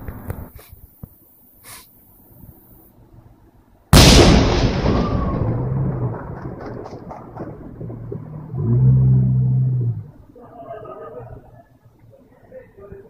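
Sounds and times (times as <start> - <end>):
firework boom with rumbling echo: 4.0 - 9.1.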